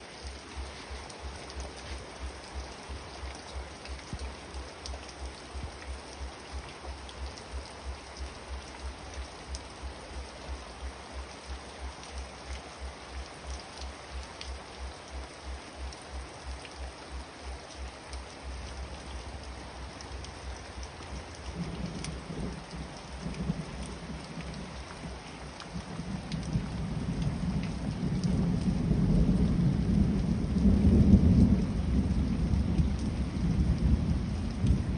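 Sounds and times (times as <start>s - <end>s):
heavy rain falling: 0.0s - 34.9s
thunder rumbling: 20.8s - 34.9s.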